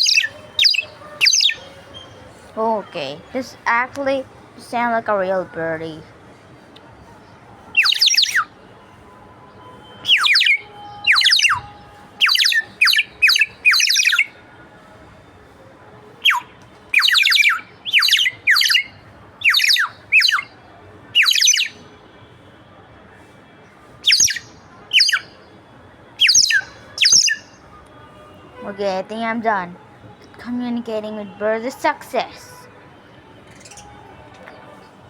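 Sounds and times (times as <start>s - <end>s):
water bird whistle chirps: 0.0s - 1.6s, 7.8s - 8.5s, 10.1s - 11.6s, 12.2s - 14.3s, 16.2s - 20.5s, 21.2s - 21.8s, 24.0s - 25.3s, 26.2s - 27.6s.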